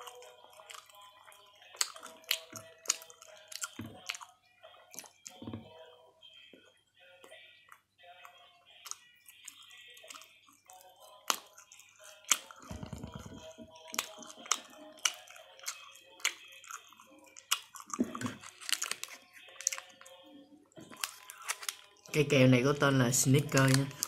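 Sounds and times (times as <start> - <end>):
chewing sandwich: 0.0 - 22.1
toasted bread crunches: 15.1 - 20.2, 20.9 - 22.0.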